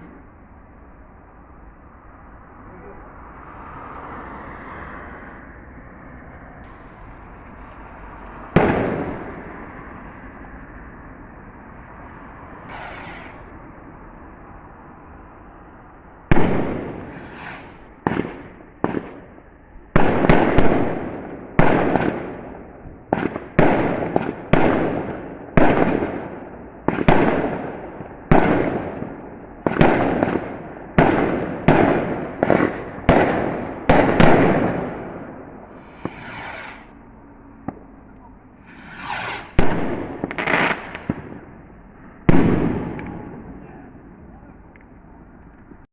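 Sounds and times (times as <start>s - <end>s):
fireworks bangs with echo: 6.6s - 10.7s, 12.6s - 44.2s.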